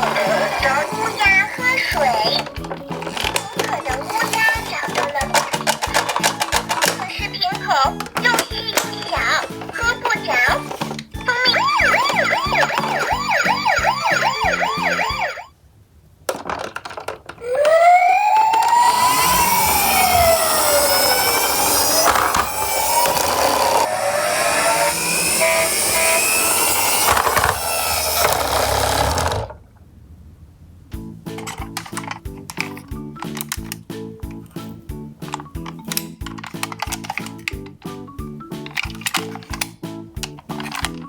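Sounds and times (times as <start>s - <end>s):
toy electronic siren: 0.0s - 15.5s, 17.4s - 29.2s.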